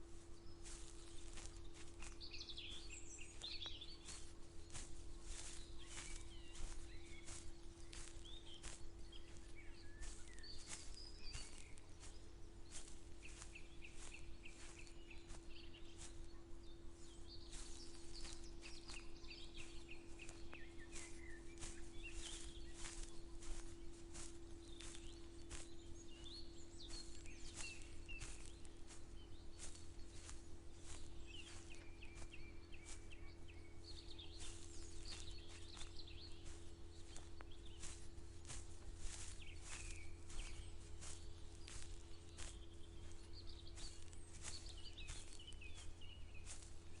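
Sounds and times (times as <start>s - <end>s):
footsteps on dry ground: 0.0s - 47.0s
small birds chirping: 0.0s - 47.0s.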